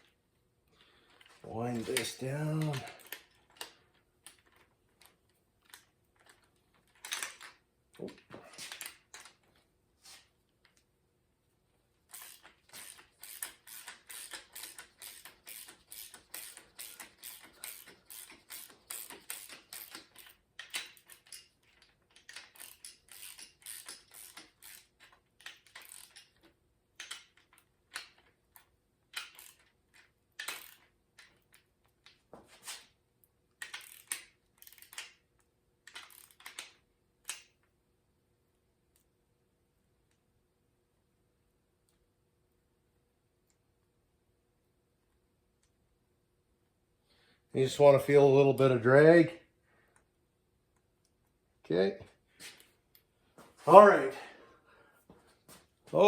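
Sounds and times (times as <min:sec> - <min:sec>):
socket ratchet clicking: 0:12.1 - 0:31.4, 0:33.6 - 0:35.2, 0:35.9 - 0:37.6.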